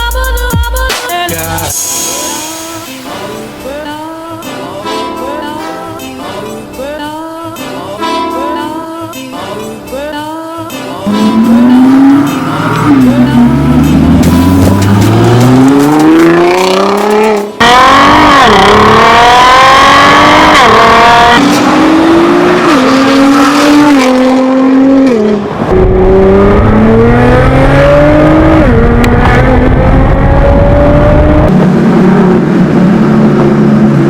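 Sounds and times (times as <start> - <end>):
car engine accelerating through gears: 11.1 - 34.0.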